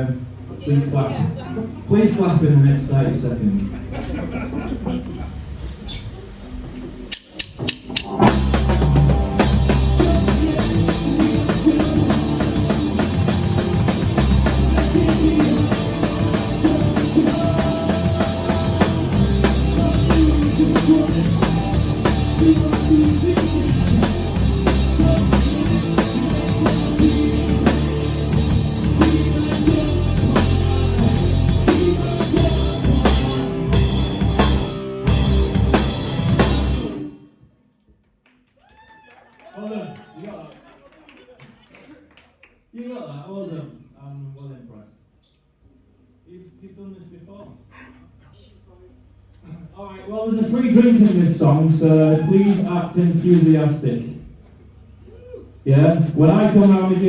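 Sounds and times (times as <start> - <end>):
rock band playing: 7.6 - 37.2.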